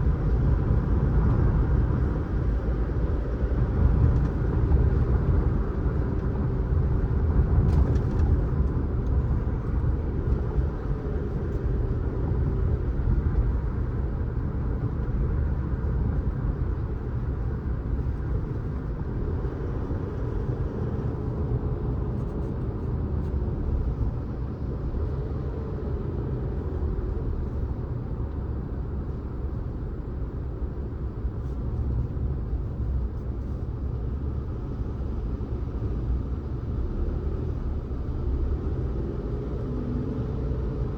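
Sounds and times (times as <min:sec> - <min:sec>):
car engine and road rumble: 0:00.0 - 0:40.9.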